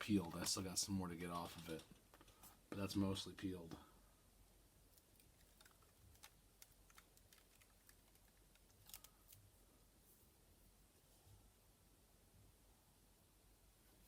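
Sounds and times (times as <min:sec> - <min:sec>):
faint clicks and scratches: 0:00.0 - 0:02.6, 0:04.9 - 0:09.6.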